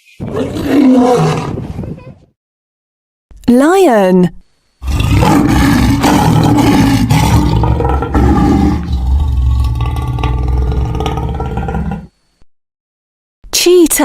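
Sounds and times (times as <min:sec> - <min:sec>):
lion roaring: 0:00.2 - 0:01.9, 0:04.8 - 0:12.1.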